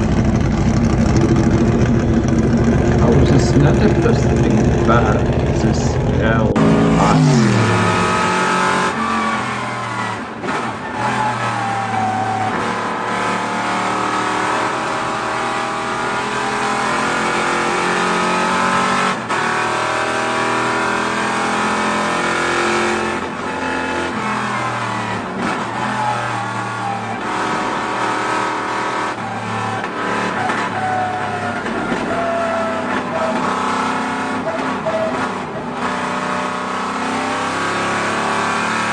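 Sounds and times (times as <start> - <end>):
car engines revving: 0.0 - 38.9.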